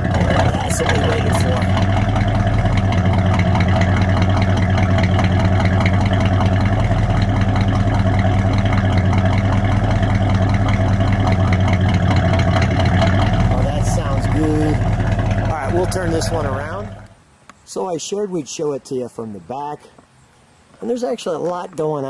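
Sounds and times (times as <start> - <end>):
car engine idling: 0.0 - 17.2.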